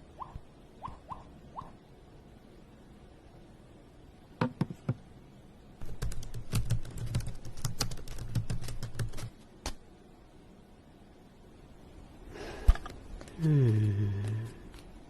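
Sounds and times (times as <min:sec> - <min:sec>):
rapid clicking taps: 0:05.8 - 0:09.3.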